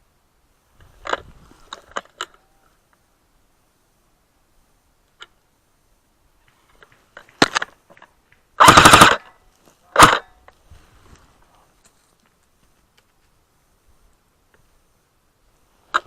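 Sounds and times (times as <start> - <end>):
airsoft gun rapid shots: 8.6 - 9.3, 10.0 - 10.2.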